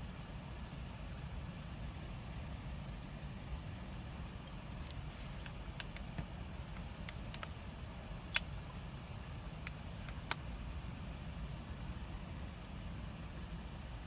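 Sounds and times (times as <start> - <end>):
bonfire crackling and popping: 0.0 - 2.2, 3.2 - 14.0.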